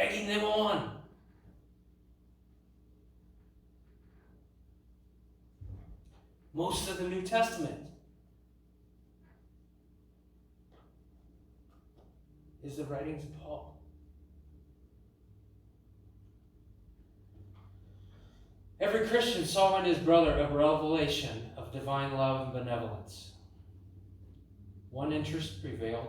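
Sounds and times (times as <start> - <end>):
low steady hum: 0.0 - 26.0
short low thump: 5.6 - 6.0.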